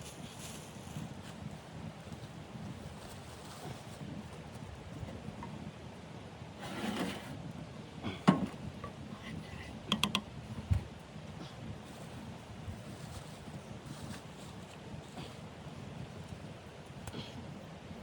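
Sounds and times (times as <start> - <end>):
sharp clicks and knocks: 9.9 - 10.3.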